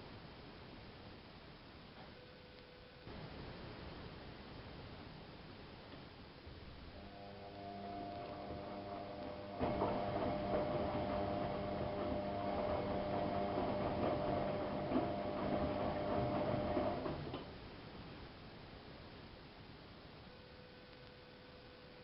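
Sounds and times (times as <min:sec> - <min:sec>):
washing machine drum turning: 0:09.3 - 0:17.2.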